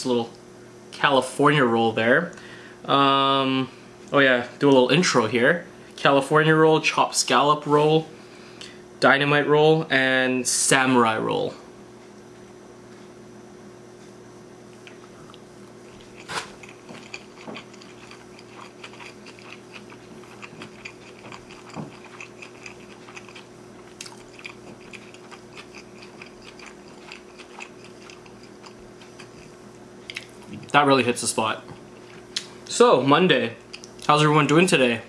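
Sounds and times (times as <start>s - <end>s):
faint steady hum: 0.0s - 35.0s
biting and chewing food: 14.7s - 30.8s.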